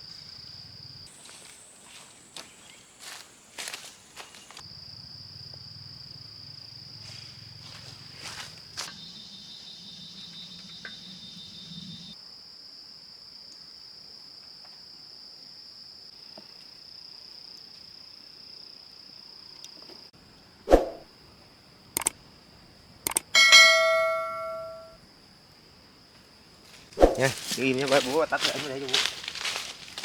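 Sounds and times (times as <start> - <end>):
insect high-pitched buzz: 0.0 - 12.8
sharp clicks: 22.0 - 22.2, 23.1 - 23.3.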